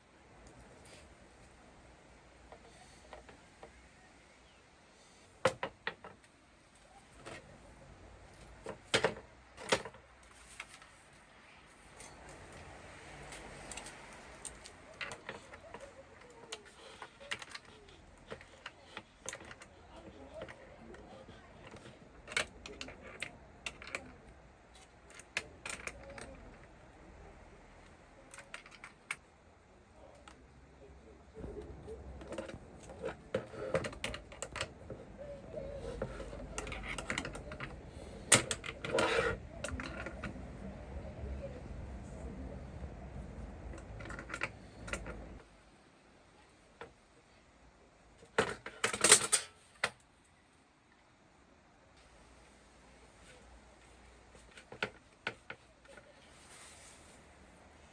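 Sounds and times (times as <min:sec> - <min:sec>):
small parts and tools clicking: 0:08.3 - 0:26.8, 0:27.8 - 0:29.3, 0:31.5 - 0:40.4, 0:48.2 - 0:50.1
brief scrape: 0:56.3 - 0:57.3.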